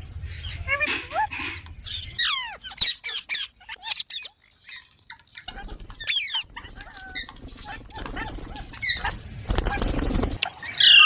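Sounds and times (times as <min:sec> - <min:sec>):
parakeet chirps and squeaks: 0:00.2 - 0:11.0.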